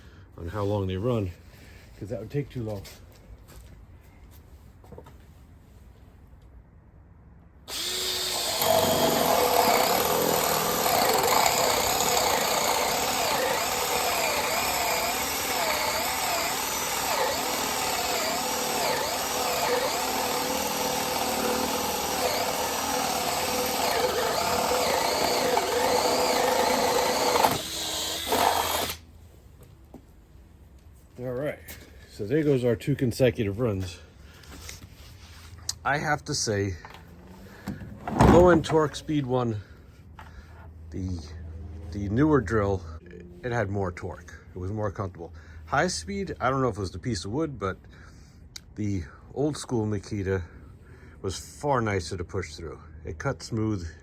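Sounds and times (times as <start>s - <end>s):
cordless drill boring through wood: 7.7s - 29.0s.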